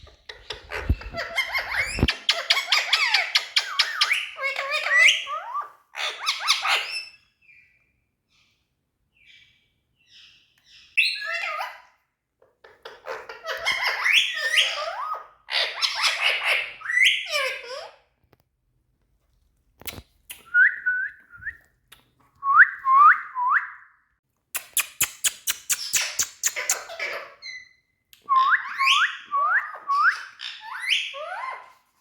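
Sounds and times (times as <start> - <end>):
parakeet chattering: 24.6 - 27.7.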